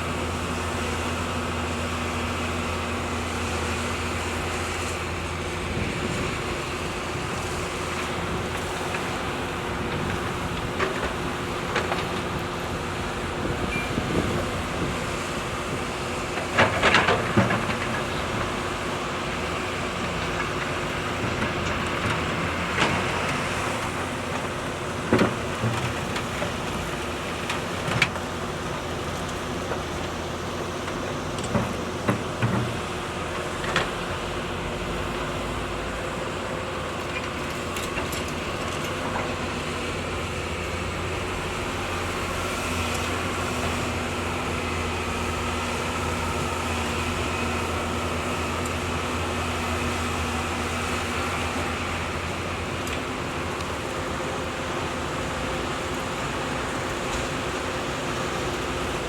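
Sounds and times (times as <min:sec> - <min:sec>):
heavy machinery engine running: 0:00.0 - 0:59.0.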